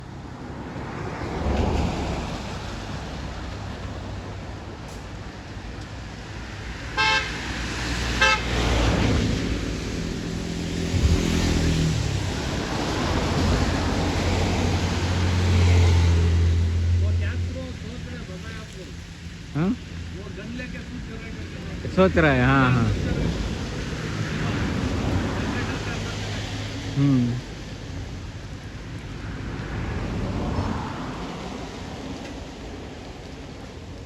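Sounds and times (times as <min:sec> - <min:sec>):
road traffic noise: 0:00.0 - 0:34.0
car horn toots: 0:07.0 - 0:07.3, 0:08.2 - 0:08.4
engine drone: 0:08.2 - 0:28.1.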